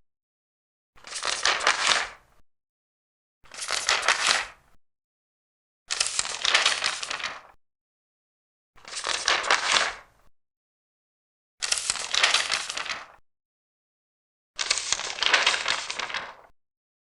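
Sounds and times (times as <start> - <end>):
paper pages turning: 1.0 - 2.2, 3.5 - 4.6, 5.9 - 7.6, 8.8 - 10.0, 11.6 - 13.2, 14.6 - 16.5.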